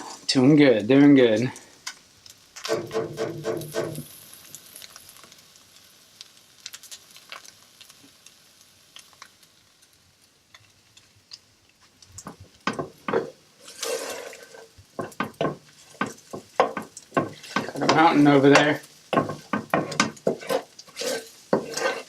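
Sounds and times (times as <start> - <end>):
food sizzling in a frying pan: 0.0 - 22.0
utensil knocking and scraping pan: 2.7 - 4.1, 12.2 - 22.0
utensil stirring food: 2.7 - 4.1, 12.1 - 22.0.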